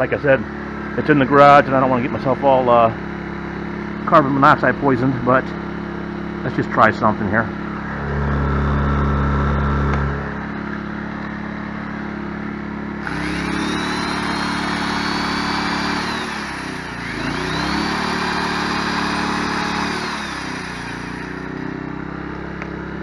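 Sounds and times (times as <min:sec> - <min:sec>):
generator running: 0:00.0 - 0:23.0
electric drill whining: 0:13.0 - 0:21.8.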